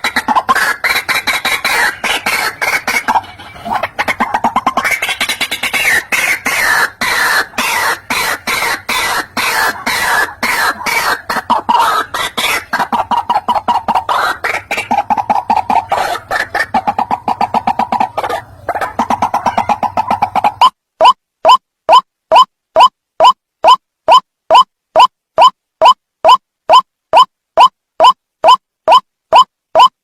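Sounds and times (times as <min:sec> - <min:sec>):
bird calling harsh rapid notes: 0:00.0 - 0:30.0.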